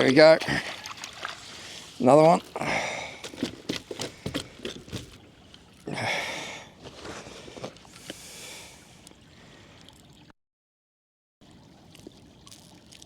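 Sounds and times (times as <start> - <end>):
fish splashing at surface: 0.0 - 5.2.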